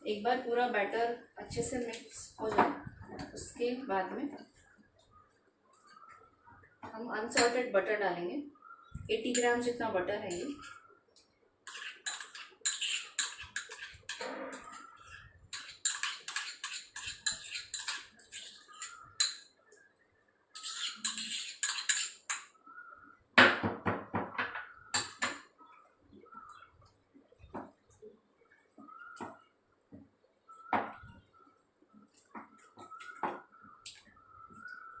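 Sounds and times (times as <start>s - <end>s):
utensil scraping mixing bowl: 11.7s - 19.3s, 20.6s - 22.4s.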